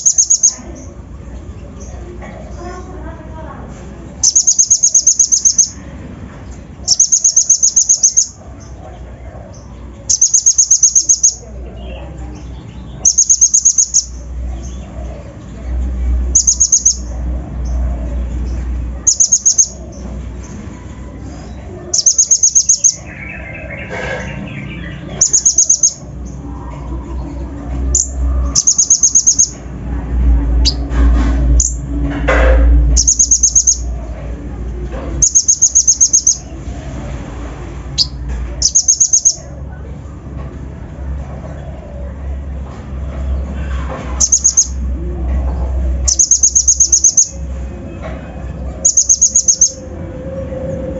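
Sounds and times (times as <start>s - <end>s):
bird sharp high chipping notes: 0.0s - 1.0s, 4.2s - 5.8s, 6.8s - 8.8s, 9.6s - 14.8s, 16.3s - 17.7s, 19.0s - 20.6s, 21.4s - 26.4s, 27.8s - 29.7s, 32.9s - 34.0s, 35.2s - 36.6s, 37.9s - 39.6s, 46.0s - 47.5s, 48.7s - 50.1s
sunbird high chirps: 0.0s - 1.0s, 4.2s - 5.8s, 6.8s - 8.8s, 9.6s - 14.9s, 16.2s - 20.6s, 21.4s - 29.6s, 32.9s - 34.0s, 35.2s - 36.6s, 37.9s - 39.5s, 44.2s - 44.8s, 46.0s - 47.5s, 48.8s - 49.8s
steady low rumble: 0.0s - 50.9s
low steady rumble: 22.9s - 38.8s.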